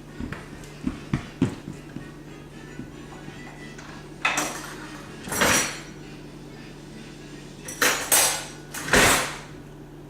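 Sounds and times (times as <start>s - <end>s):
silverware clattering: 4.2s - 5.9s, 7.7s - 9.4s.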